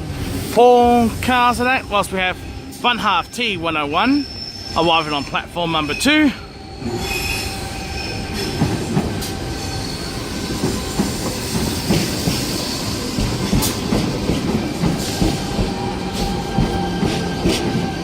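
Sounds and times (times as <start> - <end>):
light wheel squeal: 4.1 - 8.6
train wheels clattering over track: 8.2 - 18.0.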